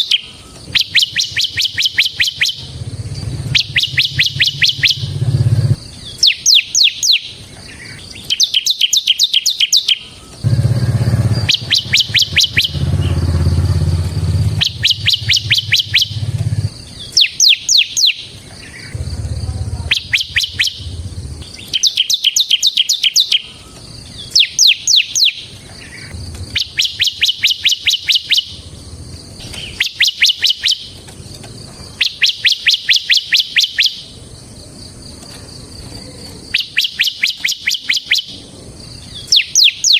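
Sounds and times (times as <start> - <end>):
bird singing high chipping notes: 0.0 - 39.9
low rumble: 2.6 - 5.8, 10.4 - 16.8, 18.9 - 21.6, 26.1 - 26.8.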